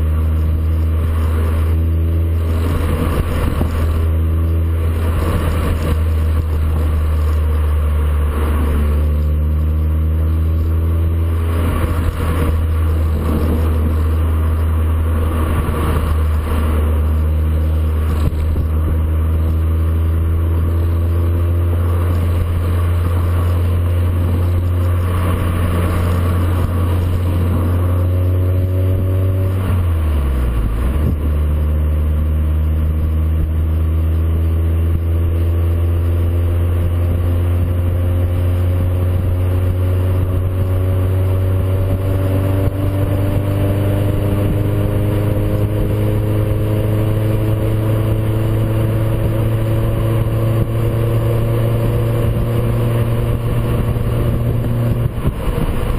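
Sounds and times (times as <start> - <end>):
car exhaust drone: 0.0 - 55.9.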